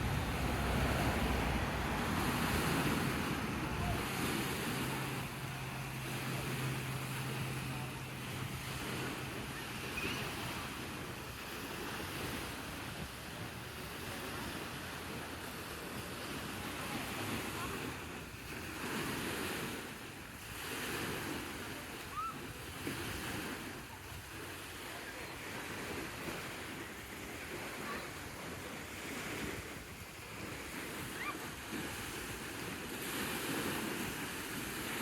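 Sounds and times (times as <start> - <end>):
wind buffeting microphone: 0.0 - 21.5
waves washing on shore: 0.0 - 35.0.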